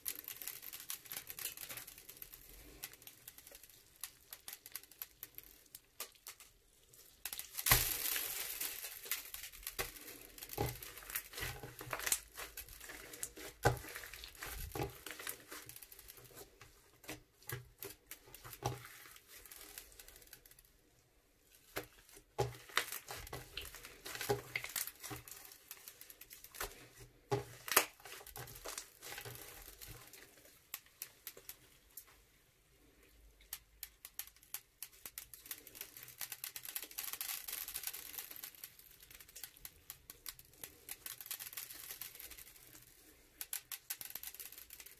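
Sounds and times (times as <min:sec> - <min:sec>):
crunchy slime crackling and popping: 0:00.0 - 0:32.1, 0:32.8 - 0:44.9.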